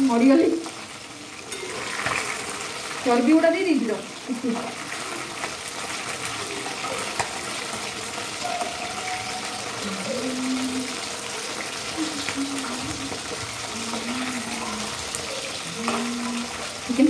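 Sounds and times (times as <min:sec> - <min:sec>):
chicken sizzling in hot oil: 0:00.0 - 0:17.0
metal spatula scraping pan: 0:01.4 - 0:02.8.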